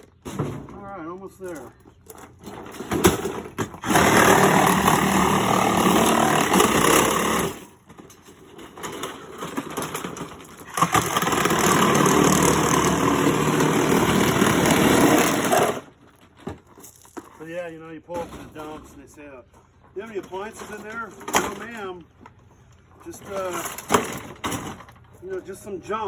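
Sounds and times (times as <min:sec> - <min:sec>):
power saw cutting: 0:03.7 - 0:07.7, 0:10.6 - 0:15.9.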